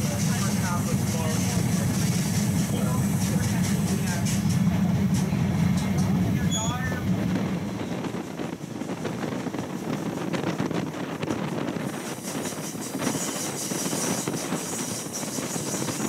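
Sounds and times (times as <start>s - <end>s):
train rumbling: 0.0s - 16.0s
wind on microphone: 7.0s - 16.0s.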